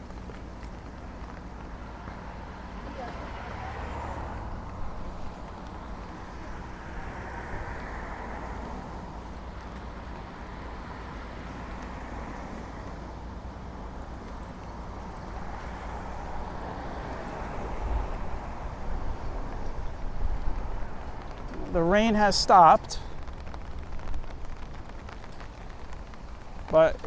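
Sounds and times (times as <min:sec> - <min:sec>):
cars passing: 0:00.0 - 0:27.0
low traffic rumble: 0:00.0 - 0:27.0.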